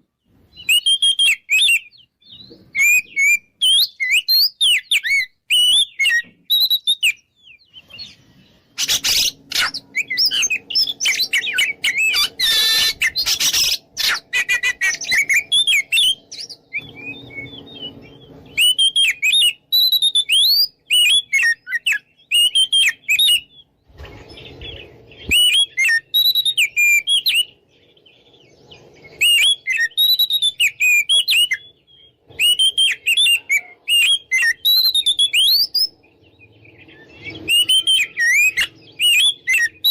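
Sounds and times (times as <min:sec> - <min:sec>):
songbird whistling loudly: 0:00.6 - 0:02.0, 0:02.7 - 0:07.2, 0:08.8 - 0:23.6, 0:24.7 - 0:27.6, 0:29.0 - 0:31.7, 0:32.3 - 0:36.0, 0:37.0 - 0:39.9
low rumbling noise: 0:08.2 - 0:18.8, 0:23.7 - 0:25.4.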